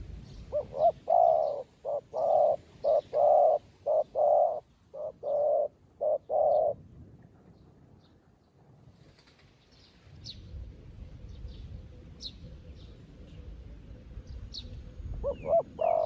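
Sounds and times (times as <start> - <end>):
dove cooing: 0.0 - 6.8, 15.1 - 16.0.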